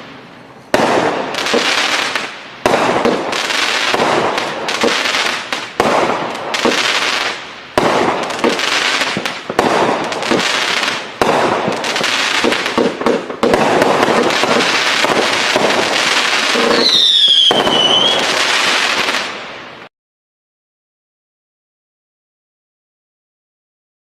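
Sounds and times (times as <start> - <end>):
firework crackling: 0.0 - 19.9
firework shots: 0.0 - 19.9
falling firework whistle: 16.2 - 19.3.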